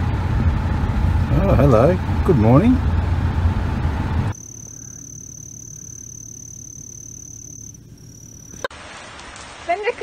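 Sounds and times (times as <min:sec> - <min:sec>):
car engine idling: 0:00.0 - 0:08.7
steady high-pitched tone: 0:04.3 - 0:08.7.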